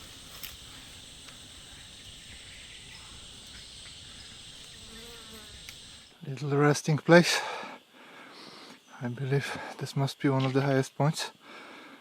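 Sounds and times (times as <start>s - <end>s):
insects chorus: 0.0s - 6.2s.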